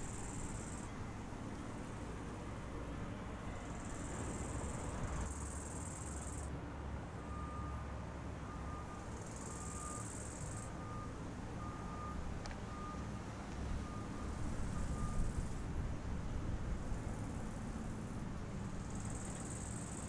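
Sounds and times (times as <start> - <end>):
faint reversing beeper: 7.2 - 13.1, 13.8 - 15.4.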